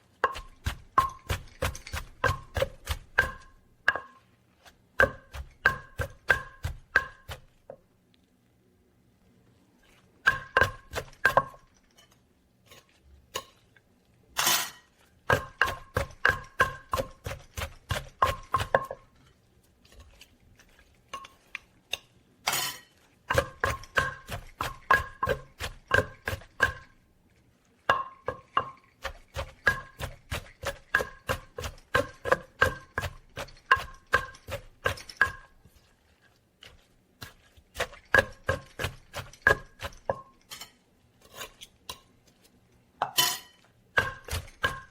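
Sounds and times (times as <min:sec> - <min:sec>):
rhythmic pestle striking: 0:00.2 - 0:03.6, 0:05.0 - 0:07.5, 0:10.2 - 0:11.6, 0:15.3 - 0:19.0, 0:23.3 - 0:26.9, 0:29.0 - 0:35.5, 0:37.8 - 0:40.2, 0:43.9 - 0:44.9.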